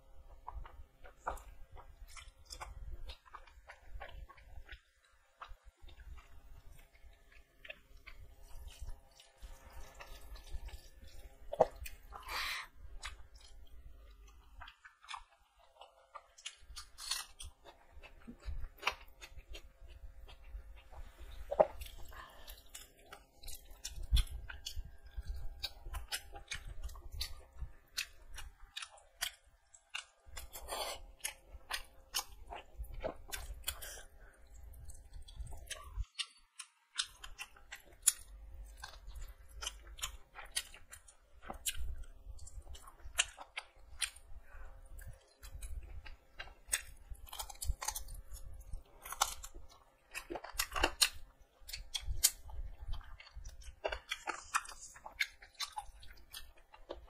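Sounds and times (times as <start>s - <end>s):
person chewing chicken: 0.1s - 57.0s.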